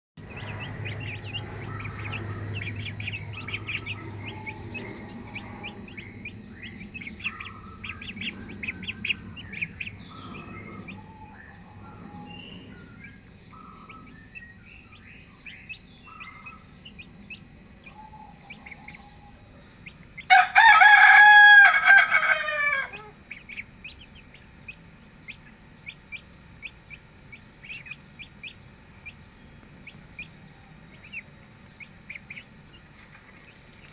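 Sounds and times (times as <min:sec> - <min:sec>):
poultry chirping and clucking: 0:00.2 - 0:33.9
rooster crowing: 0:20.3 - 0:23.3.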